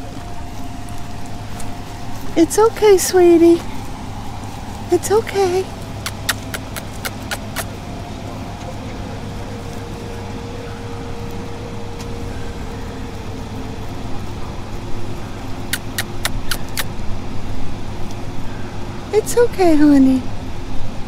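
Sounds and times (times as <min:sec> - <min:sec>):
vehicle engine idling: 0:00.0 - 0:21.0
sharp clicks: 0:06.0 - 0:07.7, 0:15.7 - 0:16.9.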